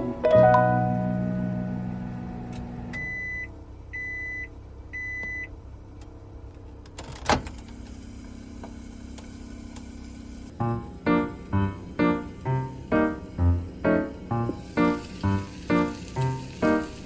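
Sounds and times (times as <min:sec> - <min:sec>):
microwave oven beeping: 0:00.0 - 0:05.6, 0:09.9 - 0:17.0.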